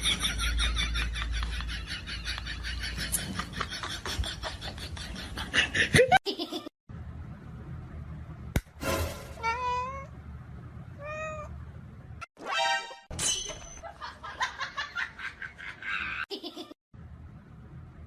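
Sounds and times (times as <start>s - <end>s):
cat meowing: 9.4s - 10.1s, 11.0s - 11.5s.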